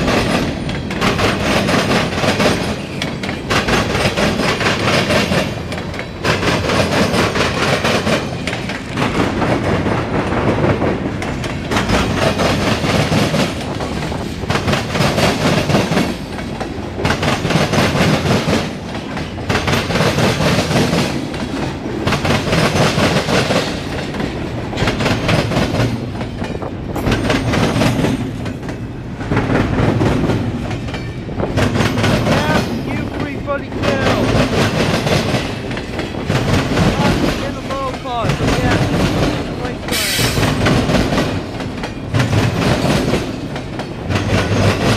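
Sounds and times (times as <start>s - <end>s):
train wheels clattering over rail joints: 0.0s - 44.9s.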